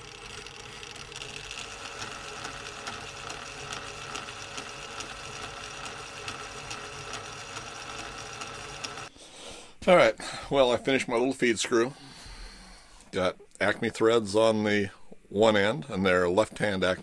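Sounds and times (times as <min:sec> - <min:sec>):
metal lathe cutting threads: 0:00.0 - 0:09.1.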